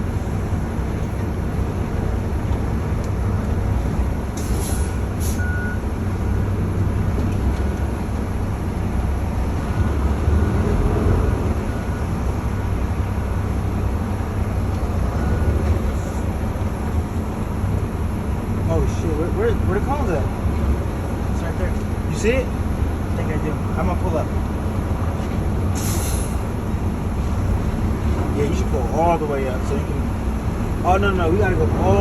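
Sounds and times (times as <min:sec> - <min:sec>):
truck diesel engine rumbling: 0:00.0 - 0:32.0
air brake hisses: 0:04.4 - 0:05.5, 0:25.8 - 0:26.5.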